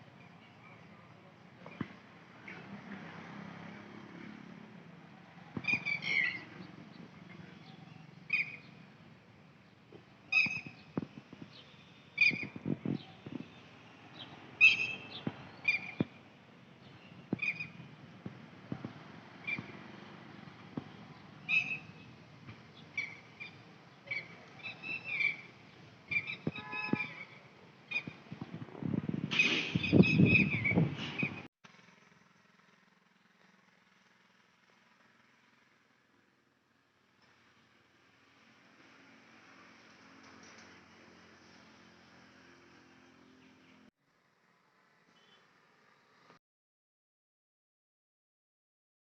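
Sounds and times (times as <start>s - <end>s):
high bird chirps: 5.6s - 8.8s, 10.3s - 16.2s, 16.8s - 17.9s, 21.4s - 22.1s, 22.8s - 28.2s, 29.4s - 31.4s.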